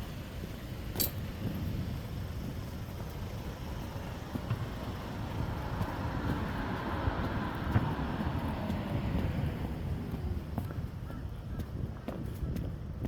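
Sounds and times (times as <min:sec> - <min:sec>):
city street traffic: 0:00.0 - 0:13.0
vehicle passing close by: 0:05.0 - 0:10.5.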